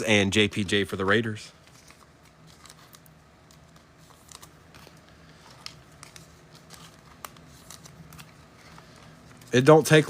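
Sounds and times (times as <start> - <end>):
trading cards clicking and snapping: 1.7 - 9.6.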